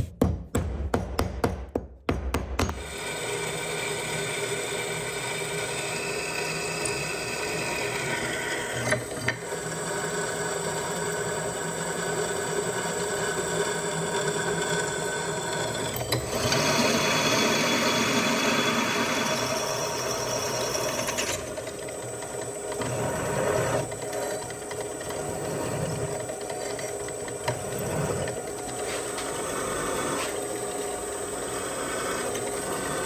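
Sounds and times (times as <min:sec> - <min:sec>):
drill press drilling metal: 0:02.6 - 0:28.6.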